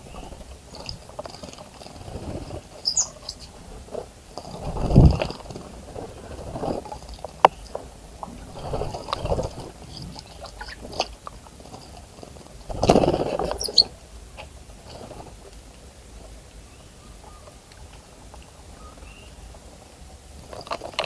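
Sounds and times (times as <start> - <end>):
bird wings fluttering and splashing: 0.0 - 15.8, 17.5 - 21.0
light ticks and patters: 0.0 - 21.0
short high bird chirps: 2.8 - 3.5.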